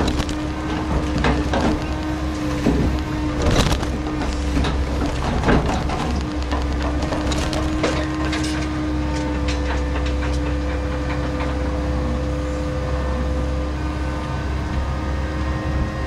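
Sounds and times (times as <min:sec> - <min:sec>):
logs knocking together: 0:00.0 - 0:11.6
diesel engine running: 0:00.0 - 0:16.0
hydraulic whine: 0:00.0 - 0:16.0.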